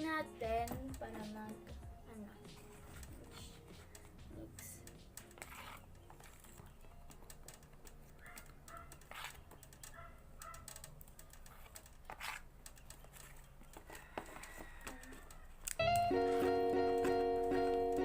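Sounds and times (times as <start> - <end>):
background music with sustained notes: 0.0 - 8.7, 15.6 - 18.0
rustling handling noises: 2.2 - 18.0
faint clicks: 3.9 - 16.0.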